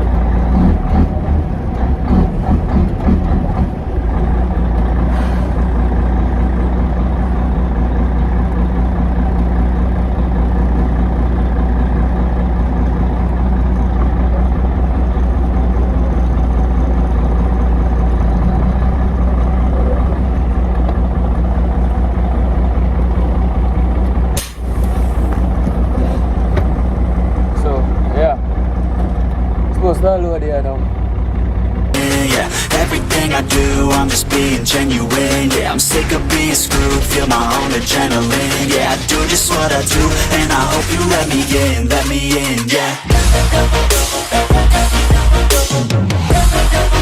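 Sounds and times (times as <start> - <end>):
diesel truck engine droning: 0.0 - 47.0
sharp click: 24.4 - 24.7.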